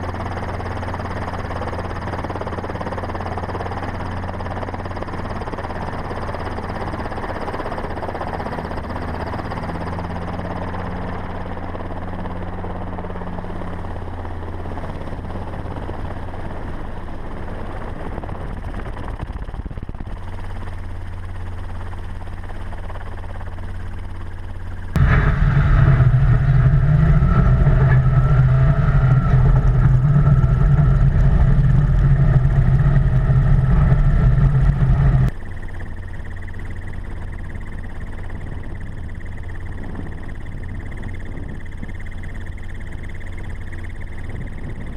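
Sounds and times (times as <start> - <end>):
high engine whine: 0.0 - 44.9
off-road vehicle engines: 24.8 - 35.4.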